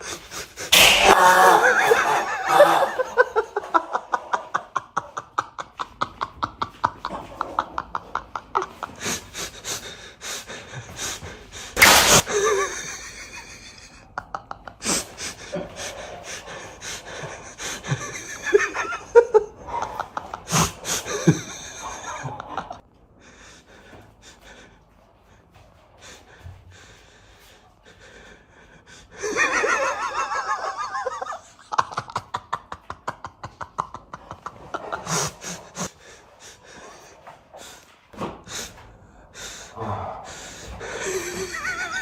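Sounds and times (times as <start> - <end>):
person laughing: 0.1 - 9.2, 11.8 - 16.1, 16.8 - 22.8.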